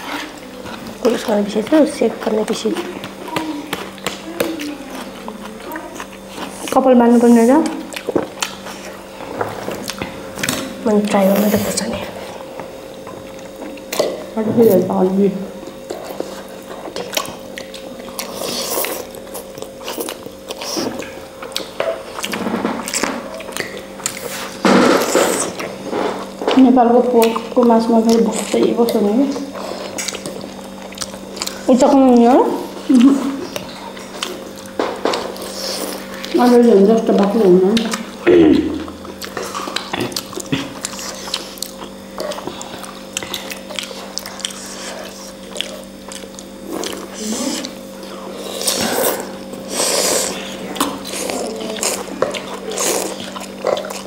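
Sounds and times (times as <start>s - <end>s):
chewing noodle soup: 0.0s - 14.4s, 15.5s - 54.0s
steady low hum: 0.0s - 54.0s.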